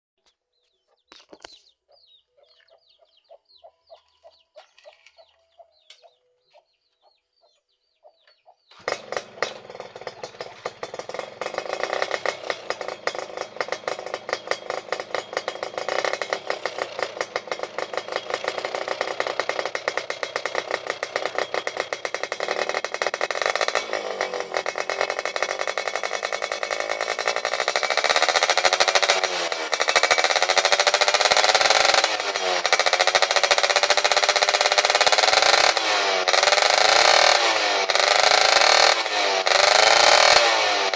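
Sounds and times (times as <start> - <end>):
two-stroke moped engine revving: 8.7 - 40.9.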